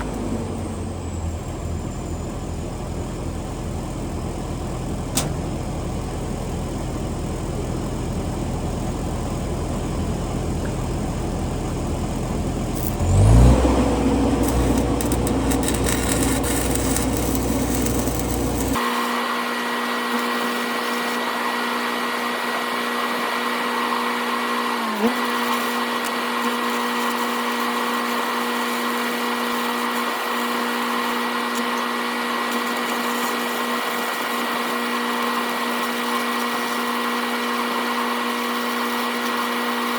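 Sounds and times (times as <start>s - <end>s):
engine idling: 0.0s - 18.8s
angle grinder whining: 11.8s - 18.8s.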